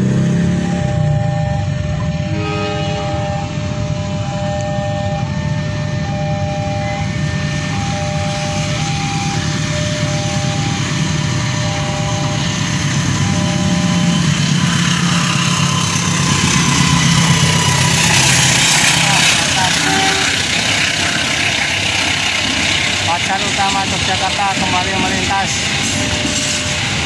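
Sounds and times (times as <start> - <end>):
diesel locomotive engine: 0.0 - 27.0
two-tone crossing warning chime: 0.0 - 27.0
train wheels on rails: 7.1 - 27.0.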